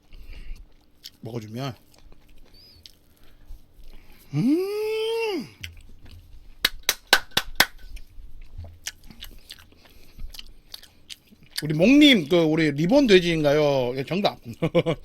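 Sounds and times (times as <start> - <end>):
crunchy chewing: 0.0 - 4.4, 7.7 - 13.3
person humming: 4.3 - 5.6.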